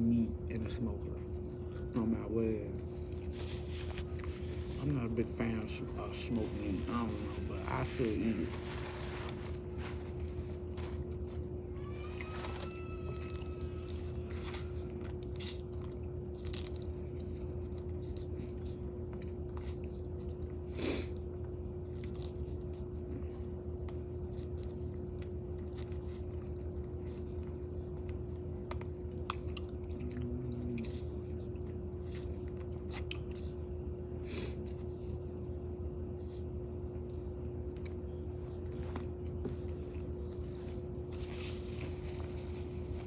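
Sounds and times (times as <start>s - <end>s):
low electrical hum: 0.0s - 43.0s
person chewing and eating: 2.6s - 33.5s.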